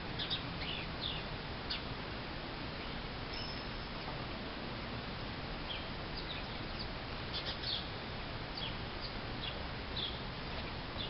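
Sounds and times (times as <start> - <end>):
small birds chirping: 0.0 - 1.9, 2.7 - 4.1, 5.6 - 11.0
steady background hiss: 0.0 - 11.0.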